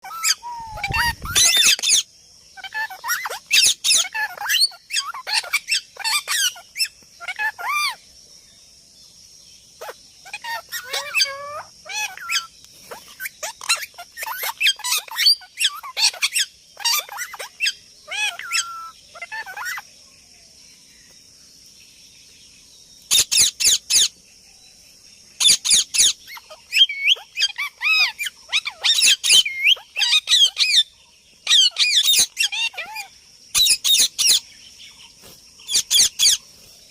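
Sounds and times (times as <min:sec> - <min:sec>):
parrot chirping and squawking: 0:00.0 - 0:08.0, 0:09.8 - 0:19.8, 0:23.1 - 0:24.1, 0:25.4 - 0:34.4, 0:35.7 - 0:36.4.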